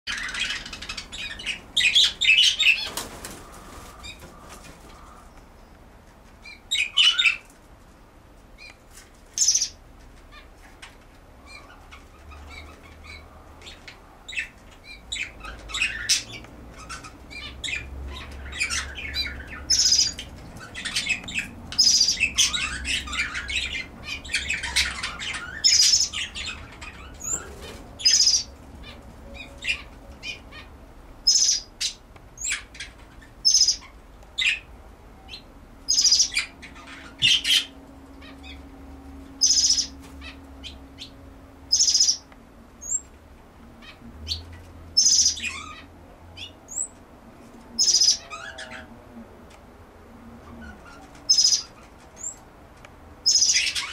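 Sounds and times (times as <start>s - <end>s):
small birds chirping: 0.1s - 7.6s, 8.5s - 43.2s, 43.8s - 49.0s, 50.4s - 52.5s, 53.2s - 53.9s.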